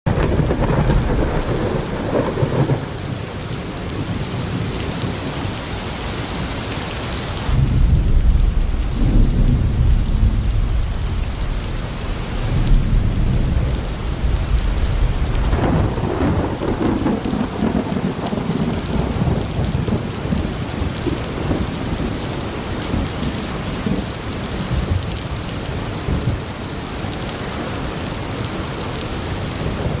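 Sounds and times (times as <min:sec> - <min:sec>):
thunder rolling: 0:00.1 - 0:03.1, 0:07.5 - 0:22.3
rain hissing: 0:00.2 - 0:30.0.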